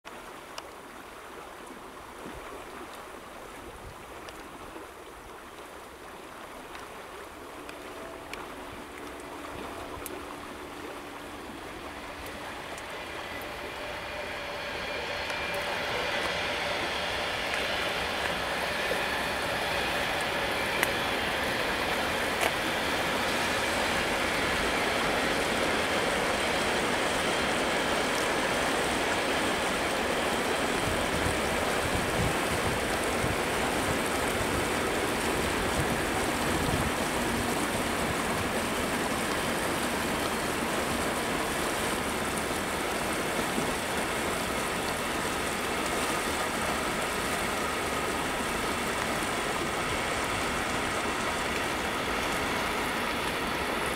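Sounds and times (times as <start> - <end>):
freight train rumbling past: 7.2 - 53.9
brief rail clicks: 12.2 - 19.1.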